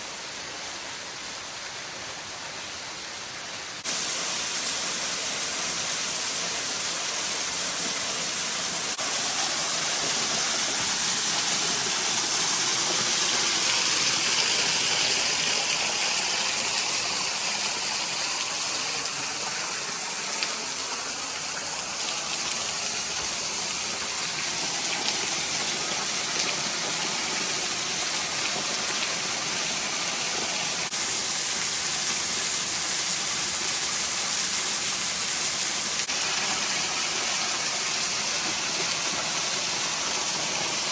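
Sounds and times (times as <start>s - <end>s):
small waterfall rushing: 0.0s - 40.9s.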